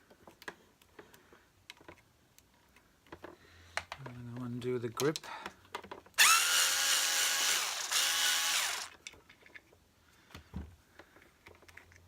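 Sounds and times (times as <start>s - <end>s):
power screwdriver whining: 6.2s - 9.0s.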